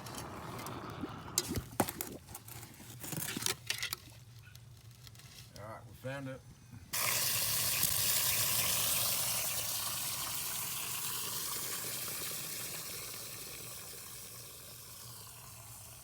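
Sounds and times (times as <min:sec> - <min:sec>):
water hissing from leaking pipe: 0:07.0 - 0:16.0.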